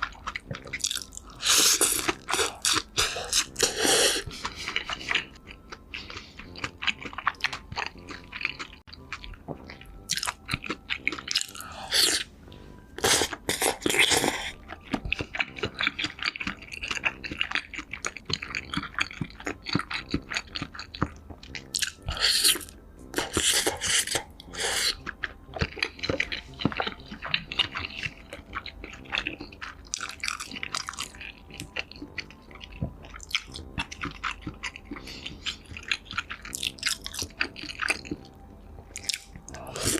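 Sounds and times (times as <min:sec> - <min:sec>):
crunchy chewing: 0:00.0 - 0:12.3, 0:13.0 - 0:39.9.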